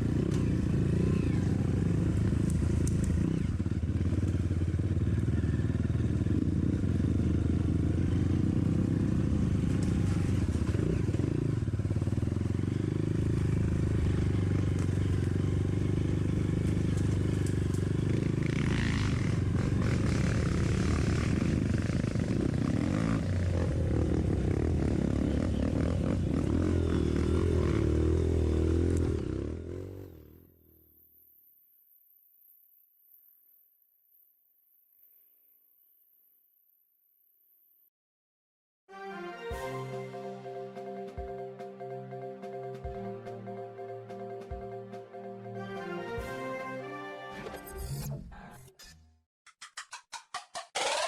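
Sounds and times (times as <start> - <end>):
dirt bike engine running: 0.0 - 30.4, 50.0 - 51.0.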